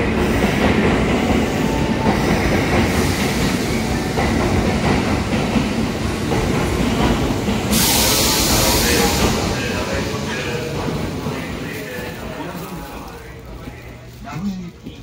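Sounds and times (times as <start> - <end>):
train clickety-clack on rails: 0.0 - 15.0
loud air hiss: 7.5 - 10.6.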